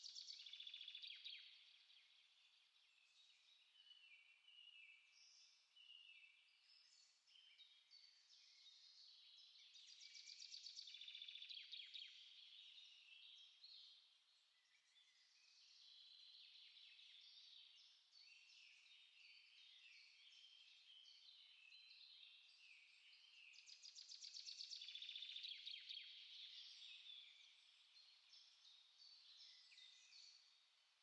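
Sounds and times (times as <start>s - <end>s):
songbirds singing: 0.0s - 31.0s.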